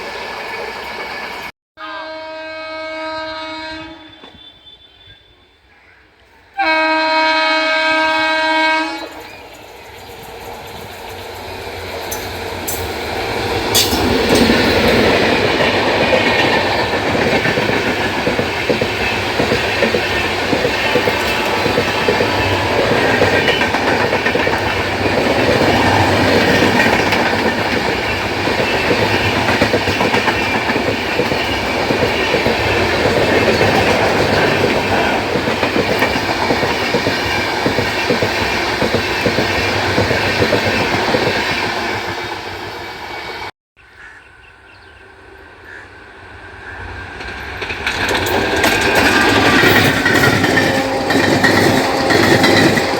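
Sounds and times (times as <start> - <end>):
train horn: 1.8 - 5.7, 6.6 - 9.5, 20.0 - 23.7, 49.7 - 52.9
train coaches rumbling and clattering: 6.6 - 43.5, 46.2 - 52.9.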